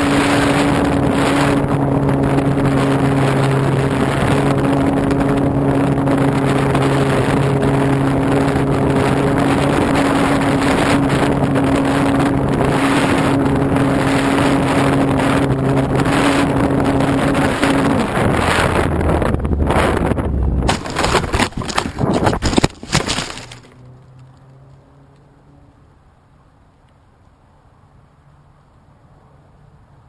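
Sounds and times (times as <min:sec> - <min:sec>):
wind rush on microphone: 0:00.0 - 0:23.6.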